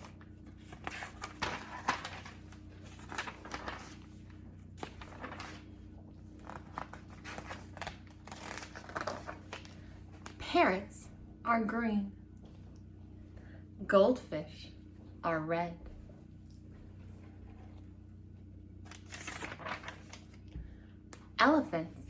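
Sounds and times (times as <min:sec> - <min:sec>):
book pages rustling: 0:00.0 - 0:10.4, 0:18.8 - 0:20.7.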